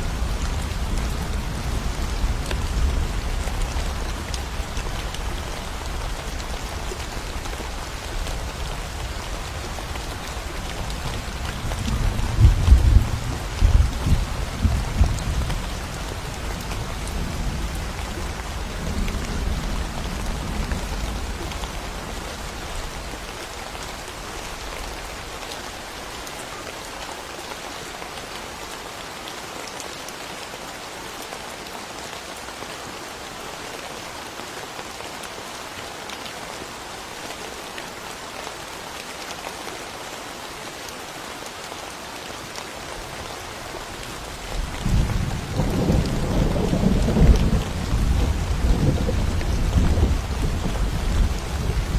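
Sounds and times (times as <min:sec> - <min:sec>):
steady rain falling: 0:00.0 - 0:51.9
thunder rumbling: 0:44.6 - 0:51.9.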